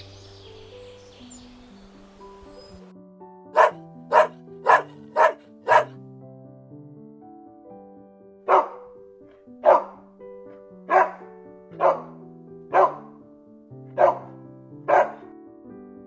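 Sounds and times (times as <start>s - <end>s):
background music with held notes: 0.0s - 16.0s
dog barking: 3.6s - 6.0s, 8.5s - 9.0s, 9.6s - 10.0s, 10.9s - 13.2s, 13.9s - 15.3s.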